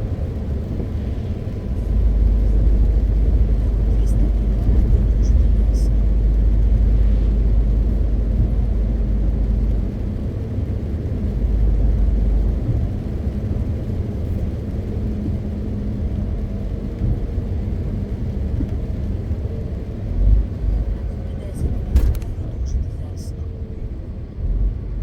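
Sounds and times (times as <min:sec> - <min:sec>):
road rumble: 0:00.0 - 0:25.0
truck diesel engine droning: 0:00.0 - 0:25.0.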